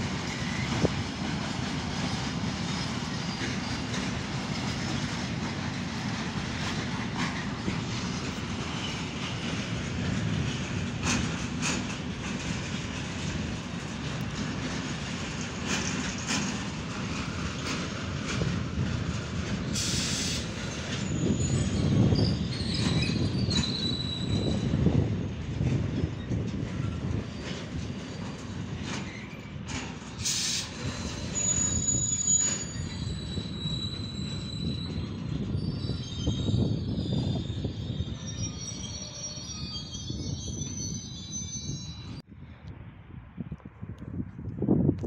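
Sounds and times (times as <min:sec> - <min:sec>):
train wheels rumbling: 0:00.0 - 0:42.3
high-pitched wheel squeal: 0:19.8 - 0:24.9, 0:30.2 - 0:42.2.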